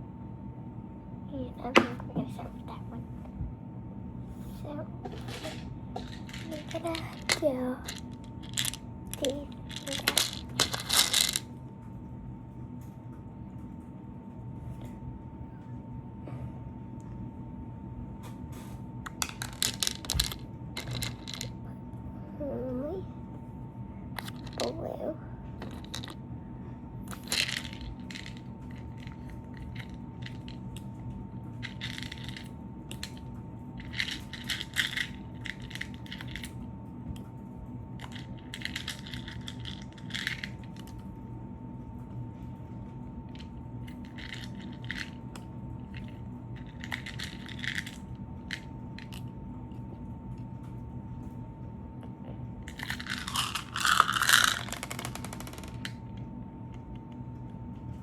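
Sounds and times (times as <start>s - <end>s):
faint electrical hum: 0.0s - 58.0s
crunchy rustling and scraping: 4.4s - 11.4s.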